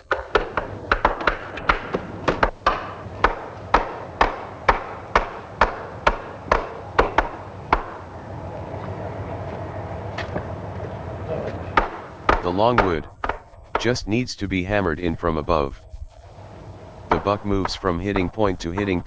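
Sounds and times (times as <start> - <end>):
hammer blows on wood: 0.0 - 14.3, 15.7 - 19.0.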